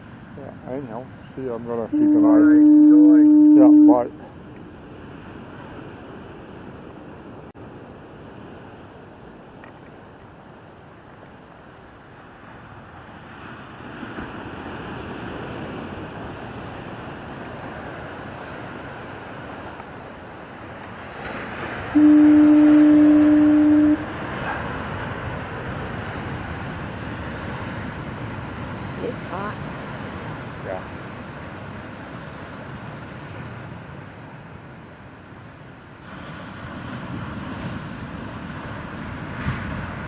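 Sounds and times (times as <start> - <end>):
low fog horn blast: 1.9 - 4.3, 21.6 - 24.8
heavy surf breaking: 11.0 - 40.0.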